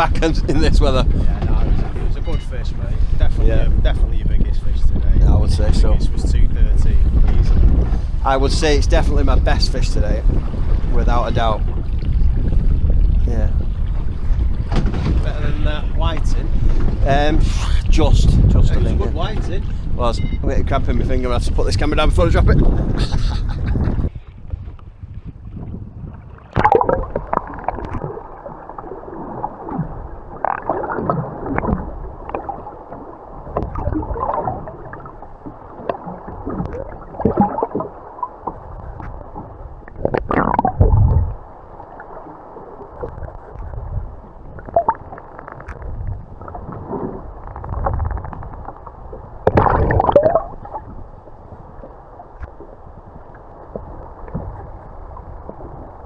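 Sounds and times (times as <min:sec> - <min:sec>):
steady low rumble: 0:00.0 - 0:56.0
muffled knocks and rubbing: 0:00.2 - 0:03.2, 0:14.0 - 0:17.1, 0:19.2 - 0:20.3.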